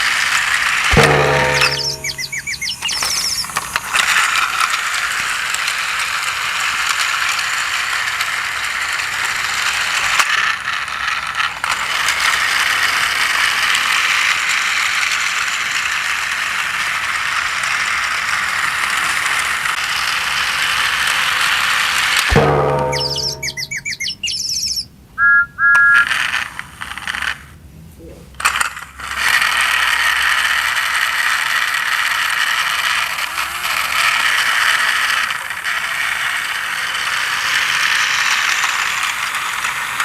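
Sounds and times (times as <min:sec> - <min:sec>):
toy train motor whirring: 0:00.0 - 0:24.8, 0:25.6 - 0:27.6, 0:28.3 - 0:40.0
chirpy electronic tone: 0:01.0 - 0:03.5, 0:22.4 - 0:26.1.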